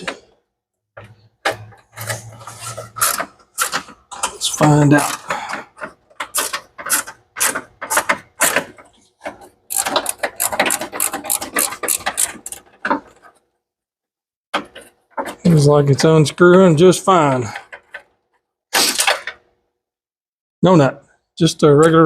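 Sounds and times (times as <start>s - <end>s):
ratchet wrench clicking: 9.7s - 12.6s.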